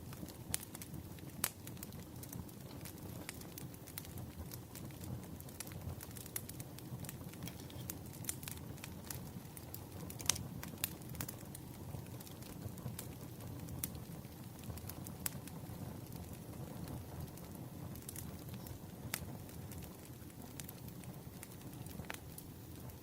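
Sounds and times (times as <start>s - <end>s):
burning wood popping: 0.0s - 23.0s
campfire crackling: 0.0s - 23.0s.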